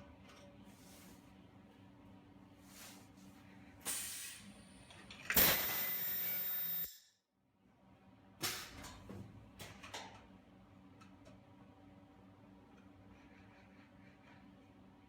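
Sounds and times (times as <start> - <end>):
short air hiss: 3.9 - 4.4
welding machine hiss and whine: 5.4 - 7.0.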